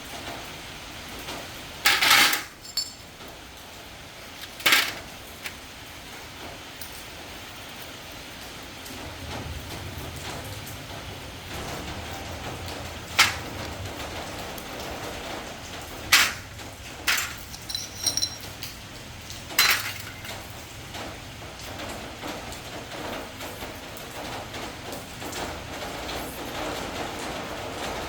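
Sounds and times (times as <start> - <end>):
metal tools clinking: 1.9 - 3.1, 4.4 - 5.6, 13.1 - 13.5, 16.1 - 18.8, 19.6 - 20.5.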